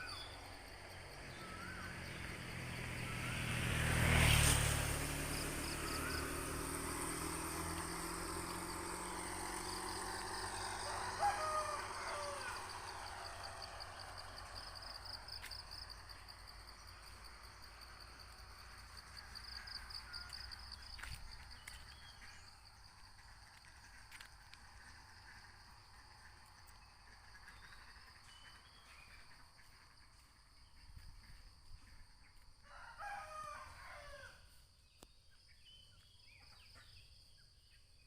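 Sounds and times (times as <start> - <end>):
bird chirps: 0.0 - 0.5
insects buzzing: 0.0 - 19.4
motor vehicle passing: 0.2 - 34.3.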